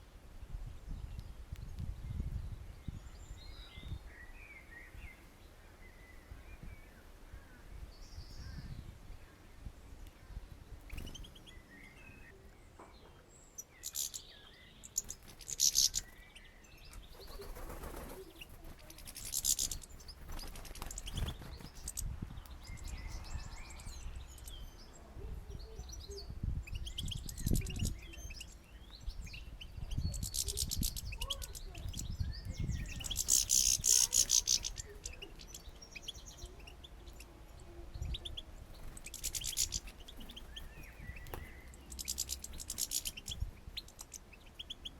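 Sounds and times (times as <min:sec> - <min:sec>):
small birds chirping: 0:00.0 - 0:44.9
wing flutters: 0:14.9 - 0:16.2, 0:16.9 - 0:22.1, 0:30.1 - 0:32.0, 0:32.8 - 0:35.6, 0:38.7 - 0:44.2.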